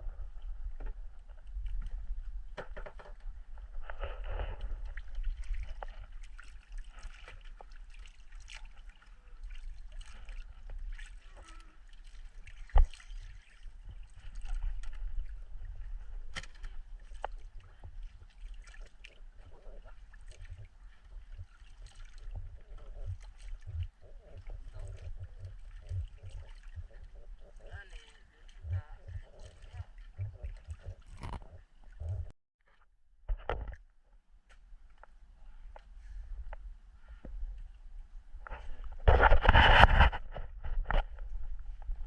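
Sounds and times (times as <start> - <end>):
water splashing around boat: 0.0 - 32.3.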